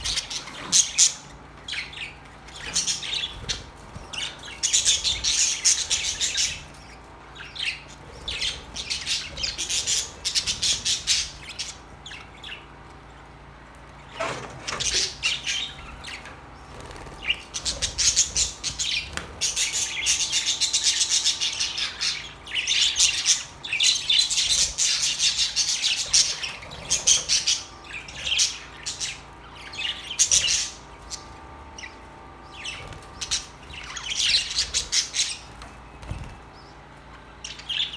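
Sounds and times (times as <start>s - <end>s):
budgerigars chirping and squawking: 0.0s - 13.3s, 13.9s - 37.9s.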